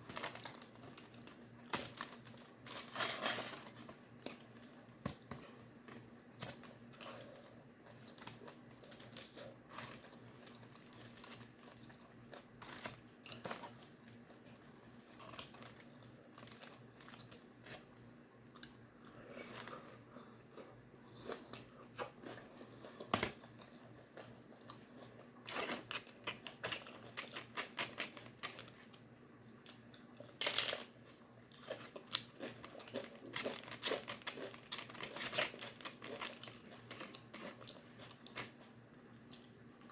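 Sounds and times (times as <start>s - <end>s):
chewing and crunching: 0.1s - 39.9s
food bag crinkling: 8.1s - 17.9s, 31.8s - 37.5s.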